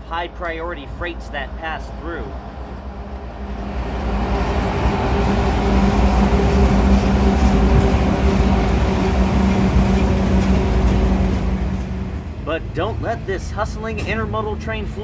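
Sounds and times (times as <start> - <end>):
diesel engine hum: 0.0 - 15.0
train wheels rumbling: 0.0 - 15.0.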